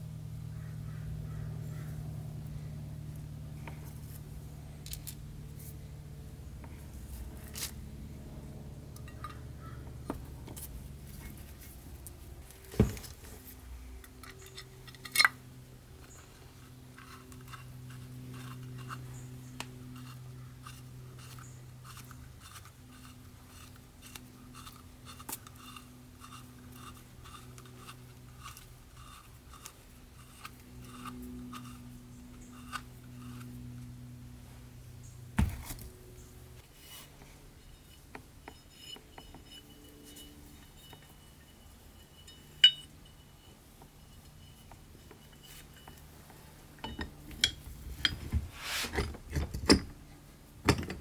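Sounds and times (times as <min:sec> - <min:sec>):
faint steady hum: 0:00.0 - 0:51.0
metal-on-metal knocks: 0:46.8 - 0:48.4, 0:50.6 - 0:51.0.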